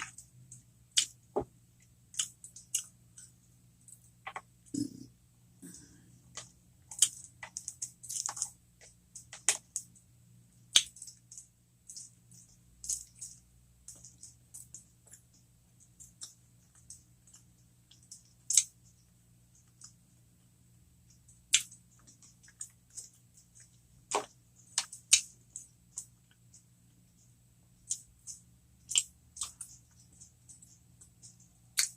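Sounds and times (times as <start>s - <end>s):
crunchy chewing: 2.1s - 4.8s, 5.6s - 9.9s, 21.1s - 31.9s.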